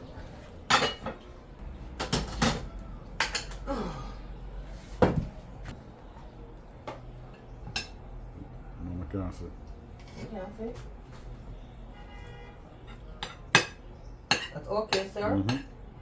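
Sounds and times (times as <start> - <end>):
spoon clanking against pots: 0.7 - 1.2, 2.0 - 3.7, 7.3 - 8.1, 12.8 - 15.8.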